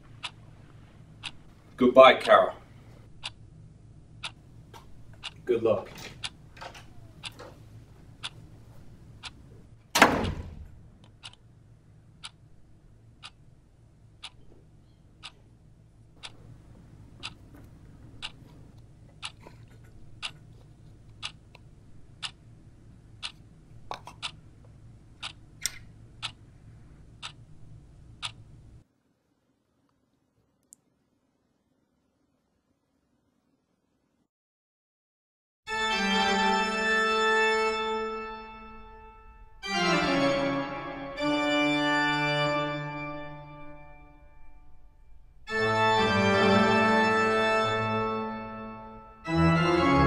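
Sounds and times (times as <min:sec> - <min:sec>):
low room hum: 0:00.0 - 0:34.3, 0:35.7 - 0:50.0
clock ticking: 0:01.2 - 0:02.4, 0:03.2 - 0:03.4, 0:04.2 - 0:04.4, 0:05.1 - 0:07.4, 0:08.2 - 0:08.5, 0:09.2 - 0:09.4, 0:11.0 - 0:11.5, 0:12.2 - 0:12.5, 0:13.1 - 0:13.4, 0:14.2 - 0:14.6, 0:15.2 - 0:15.4, 0:17.2 - 0:17.4, 0:18.1 - 0:18.4, 0:19.1 - 0:20.4, 0:21.2 - 0:22.4, 0:23.2 - 0:24.4, 0:25.2 - 0:26.5, 0:27.2 - 0:27.5, 0:28.2 - 0:28.5
loud thud like door shutting: 0:09.9 - 0:10.8.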